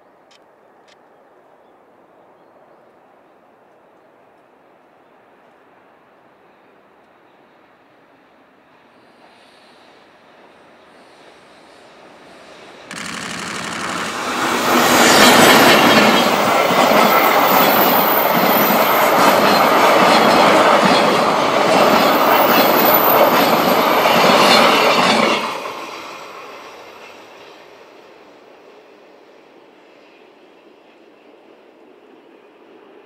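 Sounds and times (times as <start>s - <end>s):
wheels clacking over rail joints: 12.9s - 25.5s
locomotive passing: 12.9s - 27.0s.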